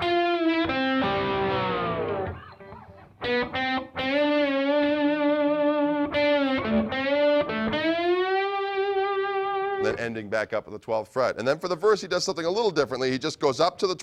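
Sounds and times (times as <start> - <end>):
distorted slide electric guitar: 0.0 - 10.0.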